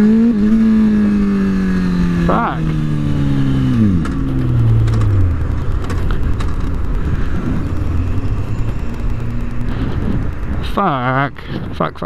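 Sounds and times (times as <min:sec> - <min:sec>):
road rumble: 0:00.0 - 0:12.0
motorcycle engine stalling: 0:02.1 - 0:11.3.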